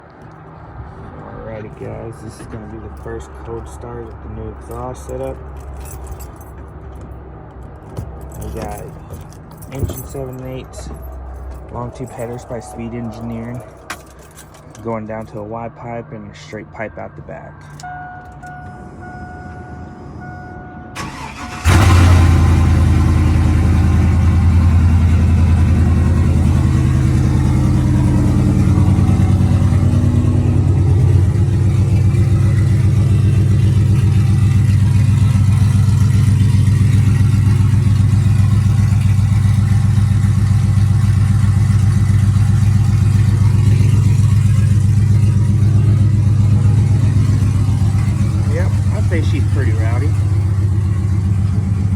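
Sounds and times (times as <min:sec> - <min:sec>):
car engine idling: 0:17.6 - 0:51.9
engine cranking: 0:21.0 - 0:51.9.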